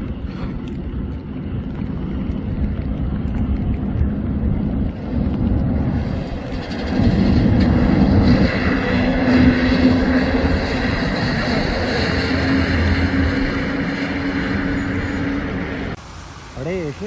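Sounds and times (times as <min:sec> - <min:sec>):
bus engine rumbling: 0:04.4 - 0:16.0.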